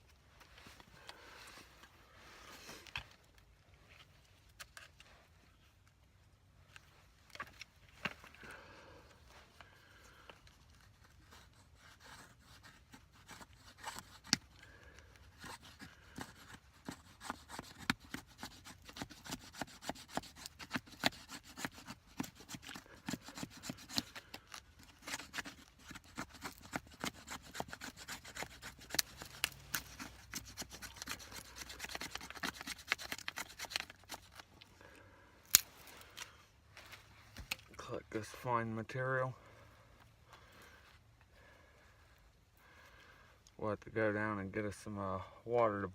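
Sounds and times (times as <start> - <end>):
knife scraping dry wood: 10.0 - 34.7, 35.5 - 36.4.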